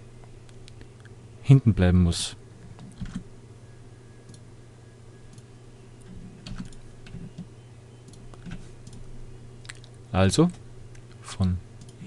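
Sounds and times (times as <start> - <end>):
low electrical hum: 0.0 - 12.0
computer keyboard and mouse clicks: 8.1 - 9.1, 11.8 - 12.0.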